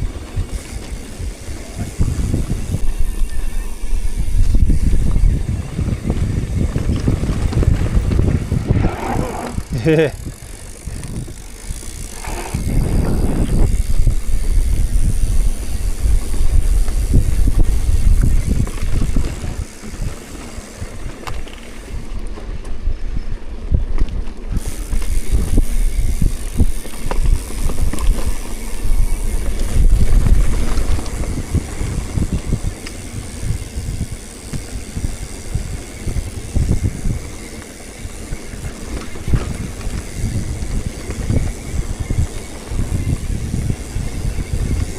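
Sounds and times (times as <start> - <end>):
road noise: 0.0 - 22.6
wind buffeting microphone: 0.0 - 44.9.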